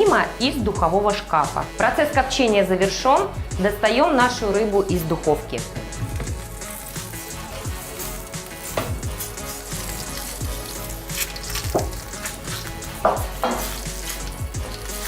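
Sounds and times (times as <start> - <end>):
background music with steady beat: 0.0 - 15.0
sizzling hiss from hot tray: 6.3 - 15.0.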